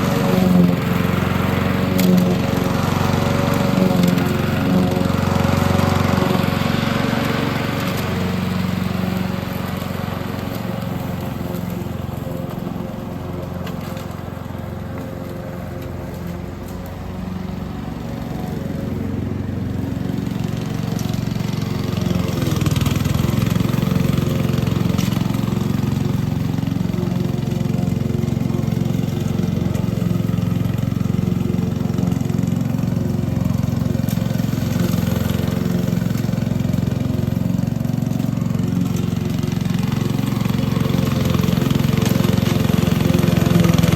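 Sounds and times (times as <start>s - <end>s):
small petrol engine running: 0.0s - 43.9s.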